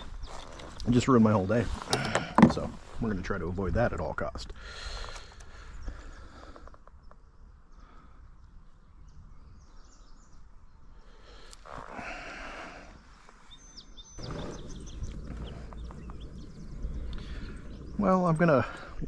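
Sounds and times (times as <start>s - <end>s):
high bird chirps: 13.4s - 19.0s
steady low rumble: 14.1s - 19.0s.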